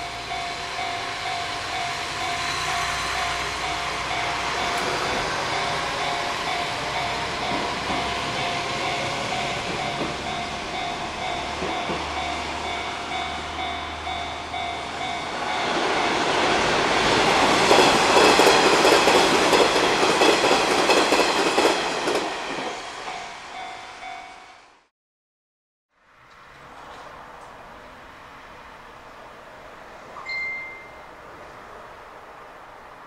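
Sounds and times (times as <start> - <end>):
train crossing steel bridge: 0.0 - 24.9, 26.5 - 33.0
train passing on tracks: 0.0 - 24.9, 26.1 - 33.0.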